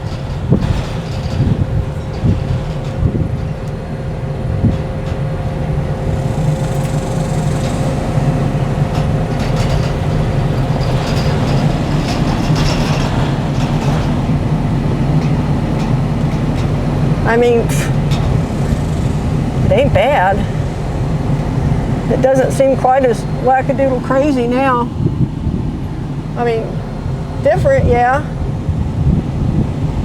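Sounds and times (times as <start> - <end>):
metal frame rattles and clicks: 0.0 - 22.4
truck engine running: 0.0 - 30.0.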